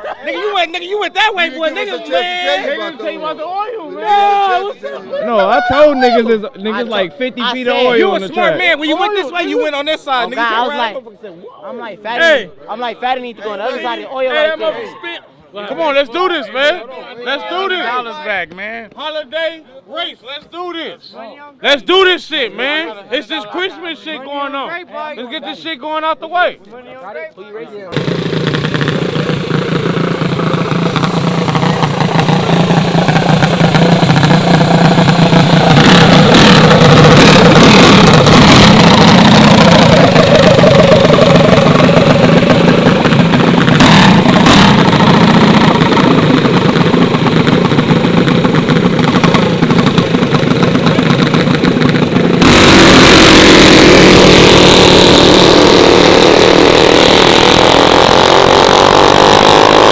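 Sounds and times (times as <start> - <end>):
mini bike engines revving: 28.0 - 59.9.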